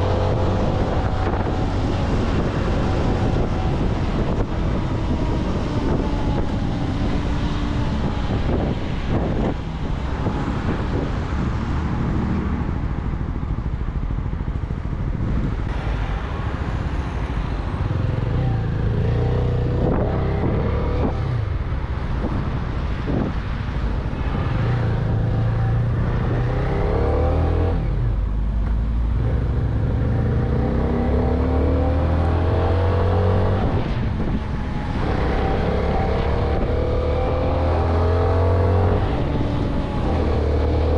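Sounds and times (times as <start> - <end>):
wind rush: 0.0 - 28.4, 29.1 - 40.9
motorcycle engine accelerating: 29.2 - 40.9.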